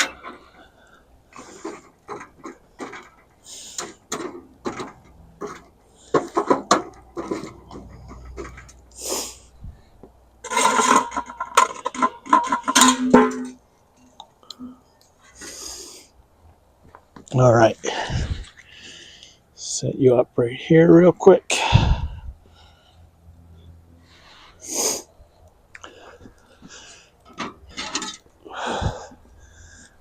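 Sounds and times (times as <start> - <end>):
metal clattering with ringing: 10.4 - 13.6.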